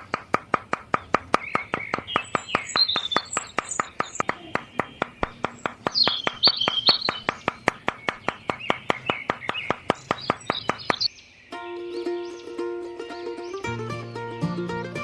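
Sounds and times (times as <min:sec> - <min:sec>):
birds chirping: 0:00.0 - 0:15.0
music: 0:11.5 - 0:15.0.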